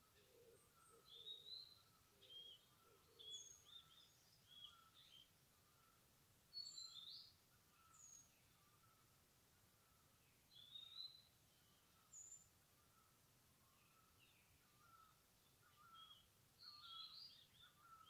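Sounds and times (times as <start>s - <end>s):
small birds chirping and whistling: 0.8s - 5.3s, 6.6s - 8.3s, 10.6s - 11.3s, 15.8s - 18.0s.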